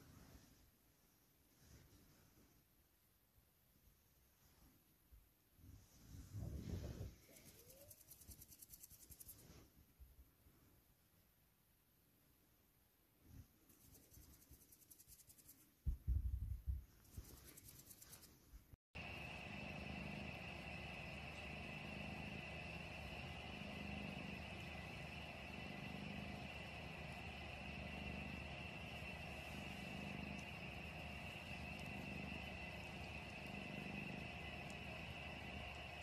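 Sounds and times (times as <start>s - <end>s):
faint high whine: 5.9s - 9.6s, 19.0s - 36.0s
cat purring: 19.0s - 36.0s.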